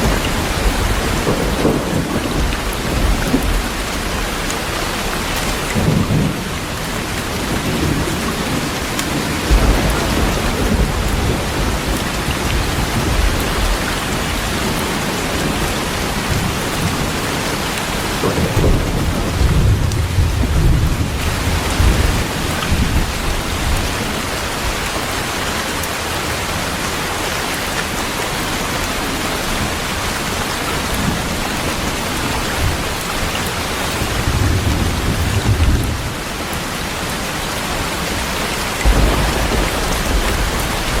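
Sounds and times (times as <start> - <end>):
thunder rumbling: 0.0 - 24.8, 30.8 - 41.0
heavy rain falling: 0.0 - 41.0.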